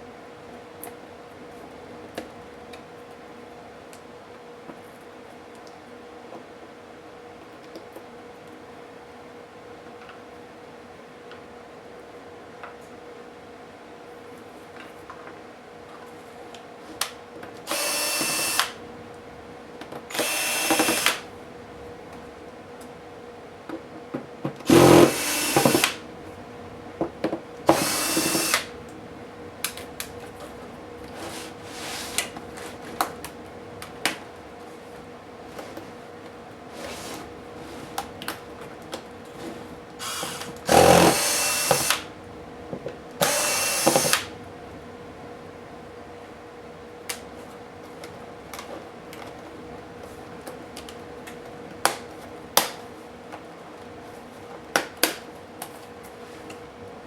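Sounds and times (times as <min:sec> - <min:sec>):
electric screwdriver whirring: 0:17.7 - 0:18.8, 0:20.1 - 0:21.3, 0:24.7 - 0:26.0, 0:27.7 - 0:28.7, 0:40.0 - 0:42.1, 0:43.2 - 0:44.3.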